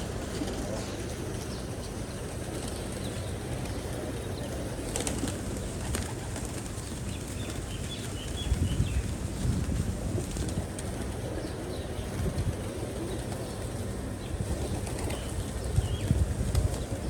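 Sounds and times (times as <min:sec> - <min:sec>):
pigeons cooing: 0:00.0 - 0:09.2.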